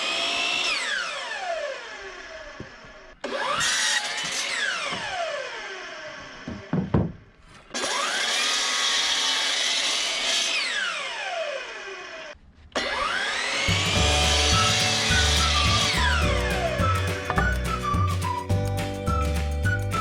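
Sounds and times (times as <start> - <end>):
electric miter saw whining: 0.0 - 6.8, 7.6 - 18.4
knocks: 6.5 - 7.3
background music with low beat: 13.7 - 20.0.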